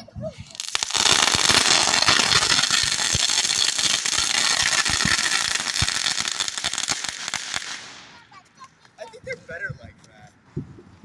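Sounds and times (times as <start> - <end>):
firework crackling: 0.4 - 8.4.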